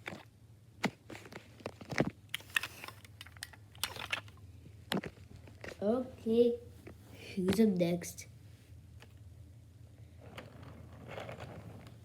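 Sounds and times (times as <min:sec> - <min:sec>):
plastic toys clicking: 0:02.3 - 0:04.4.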